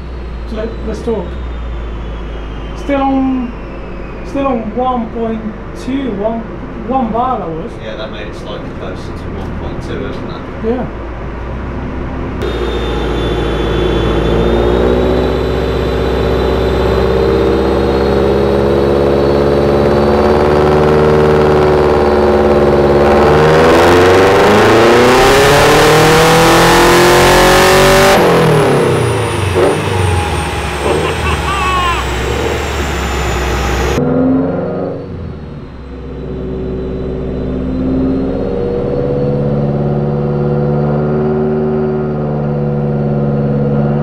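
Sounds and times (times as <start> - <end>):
faint high whine: 12.4 - 20.0
car engine revving on dyno: 12.4 - 35.0, 36.0 - 44.0
loud rushing noise: 28.5 - 34.0.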